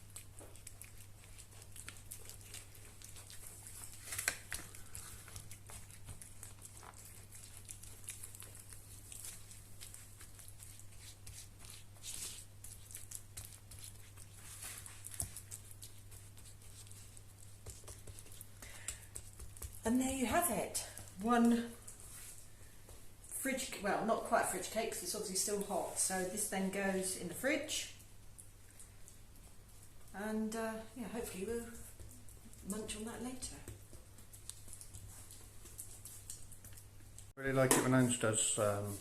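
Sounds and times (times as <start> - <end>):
cling film crinkling: 0.0 - 22.0
low electrical hum: 0.0 - 39.0.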